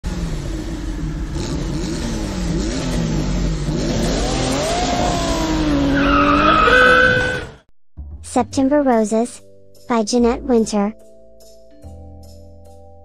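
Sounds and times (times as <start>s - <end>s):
cartoon car engine revving: 0.0s - 7.6s.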